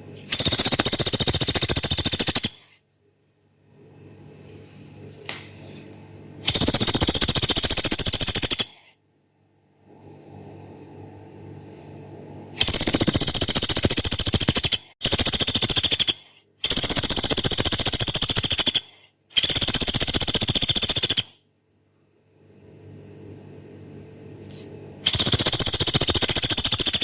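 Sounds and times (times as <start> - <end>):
woodpecker rattling calls: 0.4 - 2.6, 6.5 - 8.8, 12.6 - 21.3, 25.1 - 27.0.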